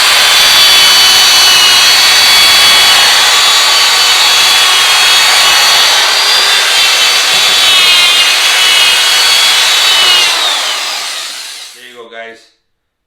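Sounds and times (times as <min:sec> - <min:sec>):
electric drill whining: 0:00.0 - 0:11.8.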